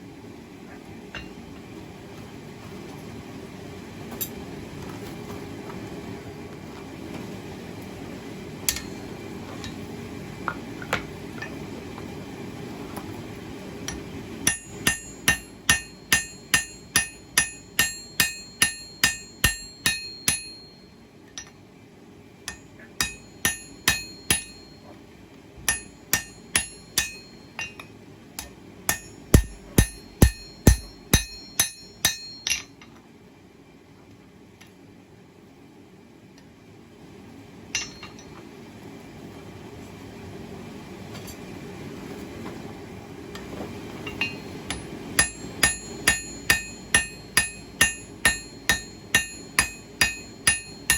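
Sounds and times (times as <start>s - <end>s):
hammer striking steel on anvil: 8.7s - 9.0s, 13.9s - 21.6s, 22.5s - 24.8s, 25.7s - 32.8s, 37.8s - 38.3s, 44.1s - 50.9s.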